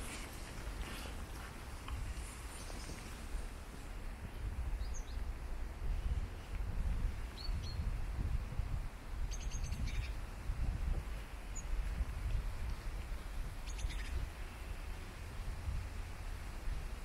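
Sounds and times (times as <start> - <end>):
birds chirping: 1.8 - 3.3, 4.7 - 5.3, 9.3 - 10.2, 13.6 - 14.8.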